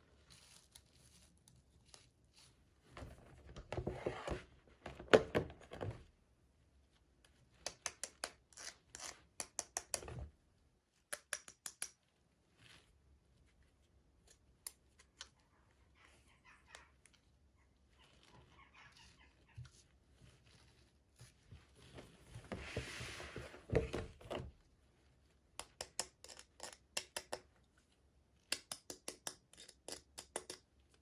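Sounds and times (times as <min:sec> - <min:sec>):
small sharp clicks and taps: 0:11.1 - 0:12.0.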